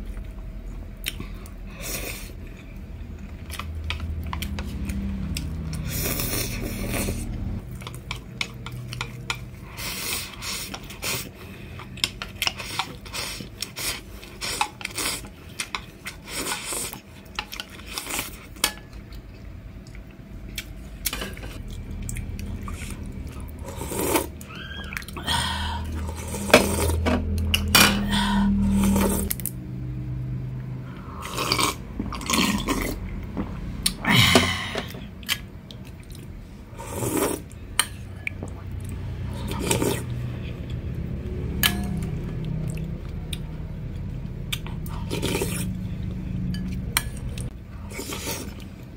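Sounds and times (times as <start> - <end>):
utensils clinking on dishes: 26.4 - 28.2
noodles being slurped: 39.2 - 40.3, 44.8 - 45.8, 47.8 - 48.8.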